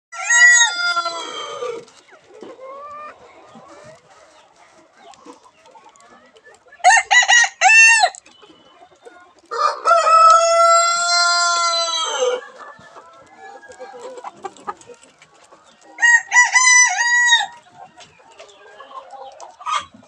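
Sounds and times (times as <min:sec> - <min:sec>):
roosters crowing: 0:00.1 - 0:01.9, 0:06.8 - 0:08.2, 0:09.5 - 0:14.8, 0:15.9 - 0:17.6.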